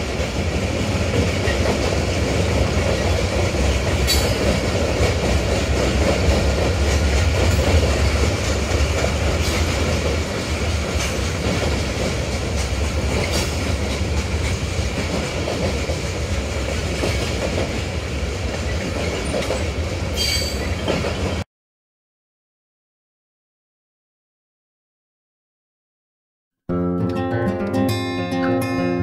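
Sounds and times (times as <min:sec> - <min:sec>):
freight train rumbling past: 0:00.0 - 0:21.4
wheels clacking over rail joints: 0:00.0 - 0:21.4
high wheel squeal: 0:20.2 - 0:20.8.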